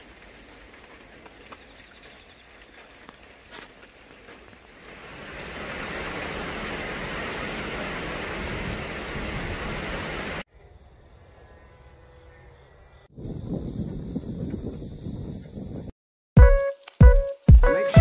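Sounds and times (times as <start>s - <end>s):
rain falling: 0.0s - 10.4s.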